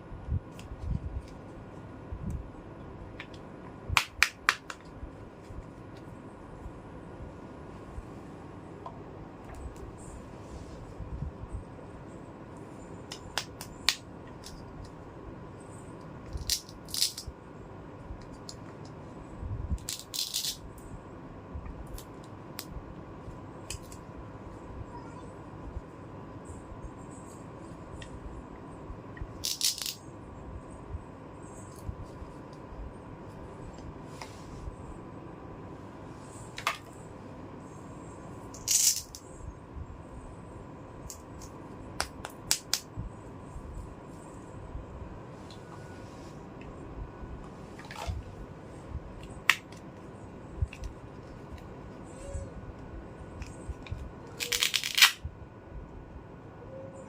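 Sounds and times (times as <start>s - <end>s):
plastic toy pieces clicking: 16.3s - 17.2s, 19.8s - 20.6s, 29.4s - 30.0s, 38.5s - 39.2s, 54.4s - 55.2s
plastic pieces rattling: 29.4s - 30.0s.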